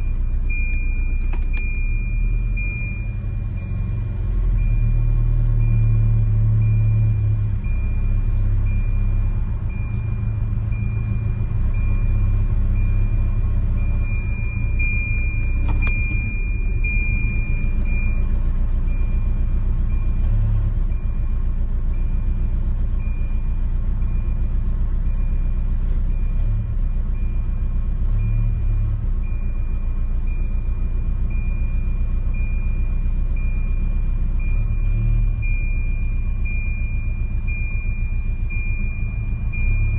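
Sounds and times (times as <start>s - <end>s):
car engine idling roughly: 0.0s - 4.8s, 7.6s - 28.2s, 29.0s - 39.9s
click: 0.7s - 1.7s, 15.2s - 16.0s.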